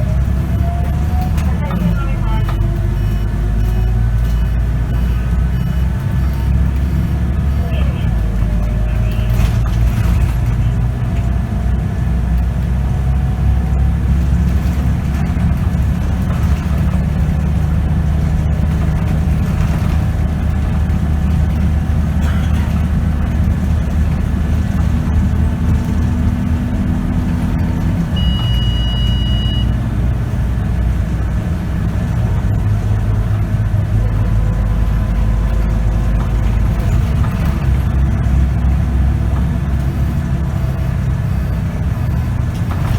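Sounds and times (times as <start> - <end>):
bus engine running: 0.0 - 42.9
short high beep: 0.4 - 8.0, 28.2 - 29.8, 39.8 - 42.9.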